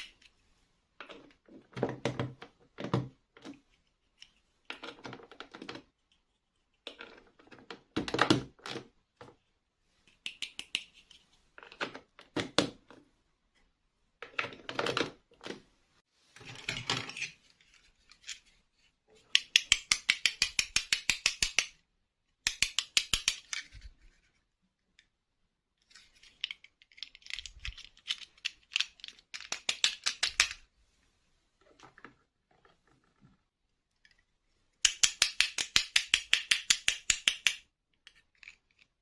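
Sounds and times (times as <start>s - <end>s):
plastic toy parts rustling: 2.6s - 15.6s, 16.3s - 19.7s, 22.8s - 25.0s, 25.8s - 30.7s, 37.9s - 39.0s.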